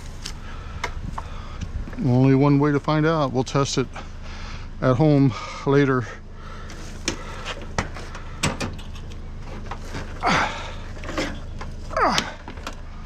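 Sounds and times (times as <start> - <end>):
steady low hum: 0.0 - 13.0
knocks and clunks: 7.0 - 10.2.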